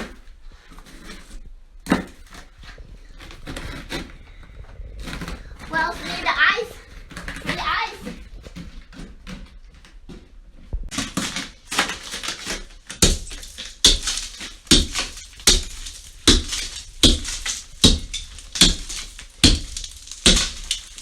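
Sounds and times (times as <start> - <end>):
loose ice rattling: 2.0 - 9.3, 10.9 - 21.0
ice crunching under tool strikes: 10.9 - 21.0.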